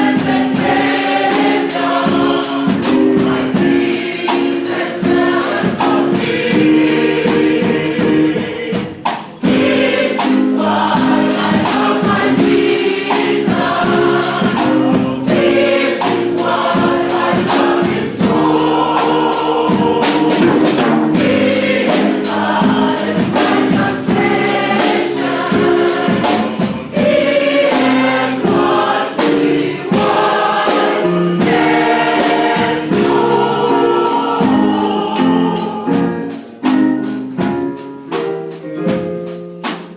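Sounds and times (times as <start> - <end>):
choir singing worship song: 0.0 - 38.1
instrumental accompaniment with beat: 0.0 - 39.9.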